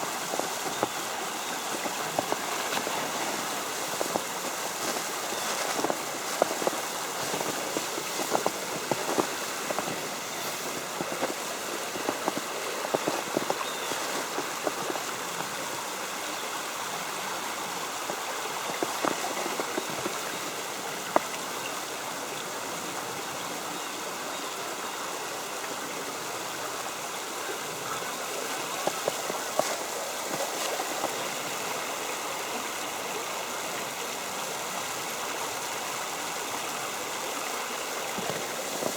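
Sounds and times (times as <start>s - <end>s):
creek water flowing: 0.0s - 38.9s
snow ticking on an umbrella: 0.1s - 15.3s, 18.0s - 21.4s, 28.2s - 31.7s, 37.8s - 38.9s.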